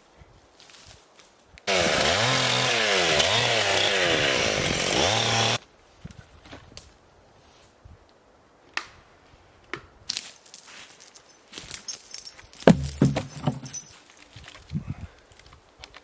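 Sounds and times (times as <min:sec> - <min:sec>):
metal clinking and jingling: 0:10.1 - 0:14.0
heavier knocks: 0:12.5 - 0:13.9.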